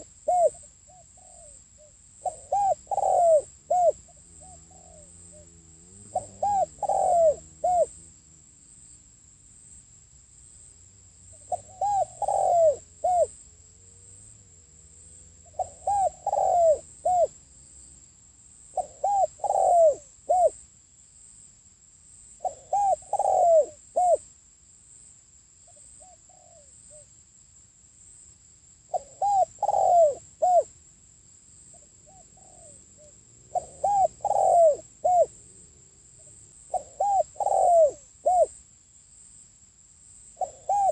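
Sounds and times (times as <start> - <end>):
dove cooing: 0.0 - 8.6, 11.3 - 13.4, 15.4 - 17.4, 18.7 - 20.6, 22.4 - 24.2, 26.0 - 27.0, 28.9 - 30.7, 31.7 - 38.6, 40.4 - 40.9.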